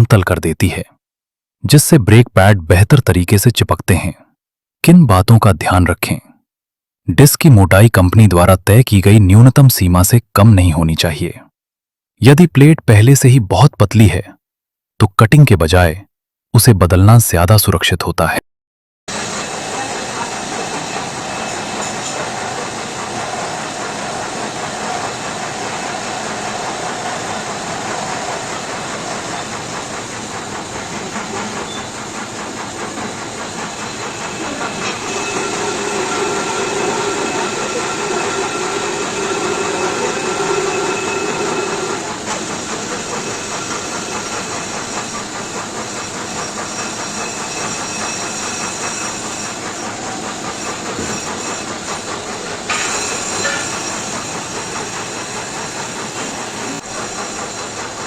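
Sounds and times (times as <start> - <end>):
brake lathe metallic hiss: 19.1 - 58.0.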